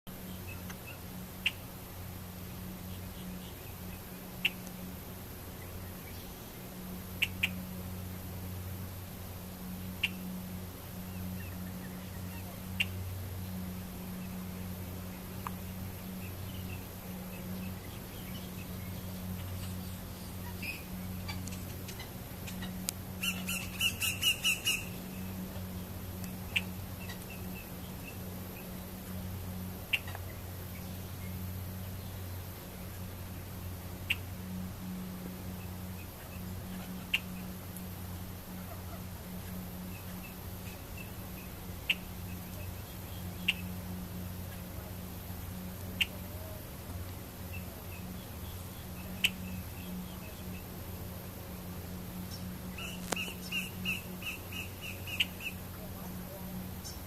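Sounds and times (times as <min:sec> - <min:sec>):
steady low hum: 0:00.1 - 0:57.0
blackbird call notes: 0:00.2 - 0:01.7, 0:02.8 - 0:04.9, 0:05.6 - 0:07.8, 0:09.8 - 0:28.8, 0:29.8 - 0:32.2, 0:34.0 - 0:34.4, 0:35.6 - 0:37.6, 0:38.5 - 0:44.8, 0:45.8 - 0:46.6, 0:47.4 - 0:50.7, 0:52.2 - 0:57.0.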